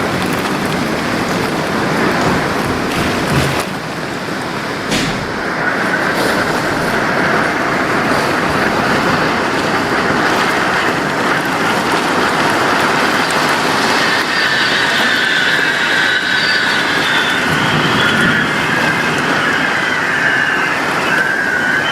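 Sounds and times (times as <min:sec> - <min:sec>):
heavy rain and wind: 0:00.0 - 0:21.9
faint high whistling tone: 0:13.6 - 0:21.9.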